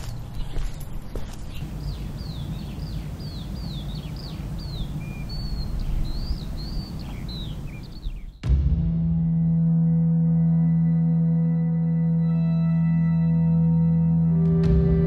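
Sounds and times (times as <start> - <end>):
footsteps: 0.0 - 2.0
birds chirping: 0.0 - 8.4
low ambient rumble: 0.0 - 8.4.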